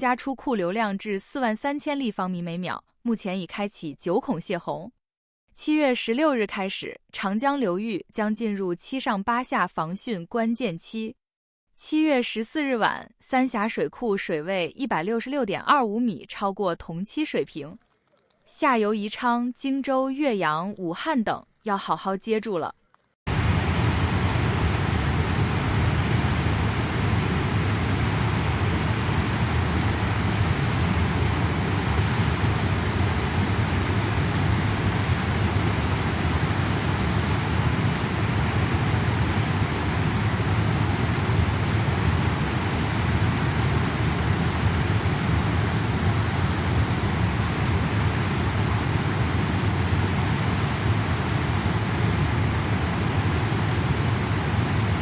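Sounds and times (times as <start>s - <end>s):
rushing floodwater roar: 23.3s - 55.0s.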